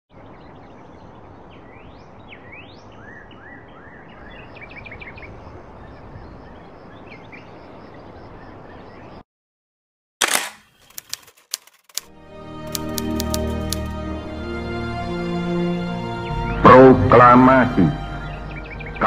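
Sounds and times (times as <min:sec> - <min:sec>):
birds chirping: 0:00.1 - 0:09.2, 0:18.1 - 0:19.0.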